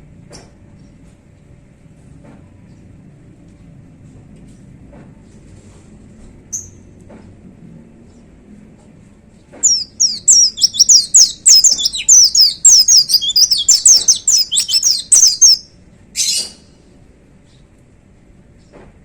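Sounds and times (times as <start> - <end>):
bird singing high notes: 9.6 - 15.7
harsh rasping bird call: 9.6 - 15.7.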